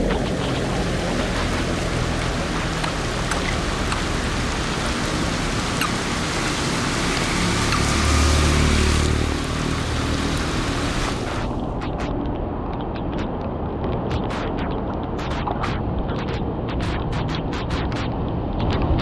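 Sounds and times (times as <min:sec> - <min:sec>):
heavy rain falling: 0:00.0 - 0:18.5.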